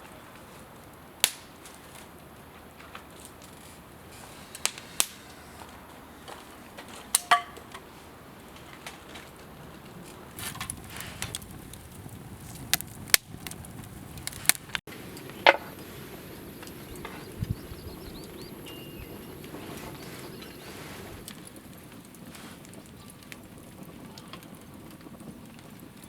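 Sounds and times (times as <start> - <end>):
campfire crackling: 0.0 - 26.0
sharp pops and snaps: 1.2 - 1.5, 4.6 - 5.2, 10.4 - 14.8.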